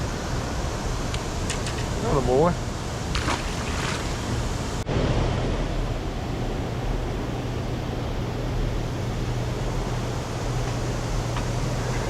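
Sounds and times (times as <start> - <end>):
water rushing: 0.0 - 8.0
low even hum: 0.0 - 12.0.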